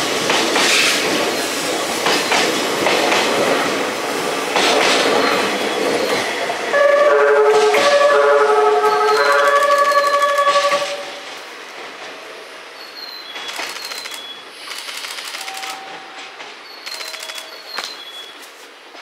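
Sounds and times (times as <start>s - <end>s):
train wheels clattering over rail joints: 0.0s - 6.4s, 13.2s - 19.0s
train musical horn chord: 6.7s - 11.3s.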